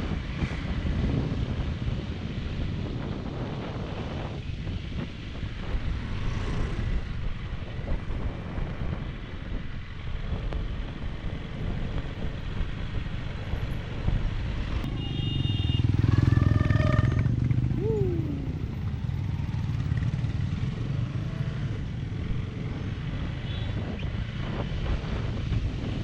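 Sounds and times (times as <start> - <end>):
motorcycle riding rumble: 0.0 - 26.0
passing traffic: 0.0 - 26.0
vehicle horn: 14.9 - 17.4.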